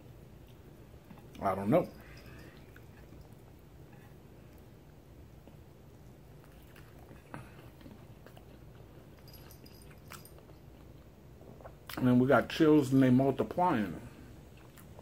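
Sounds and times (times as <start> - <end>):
man chewing: 2.0 - 12.0, 14.4 - 15.0.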